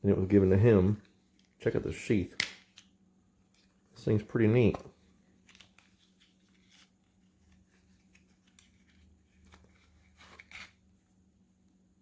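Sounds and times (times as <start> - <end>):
knife sheath scrape: 10.1 - 10.8.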